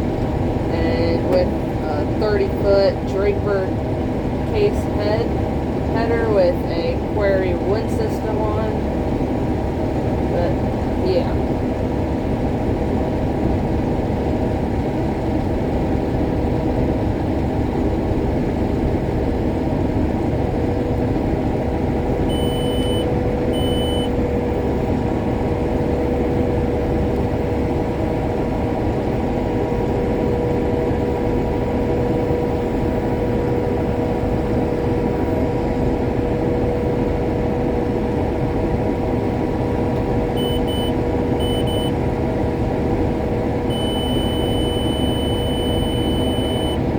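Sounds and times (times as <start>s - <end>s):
combine harvester engine drone: 0.0s - 46.9s
short electronic beeps: 22.3s - 24.2s, 40.4s - 42.0s, 43.7s - 46.8s.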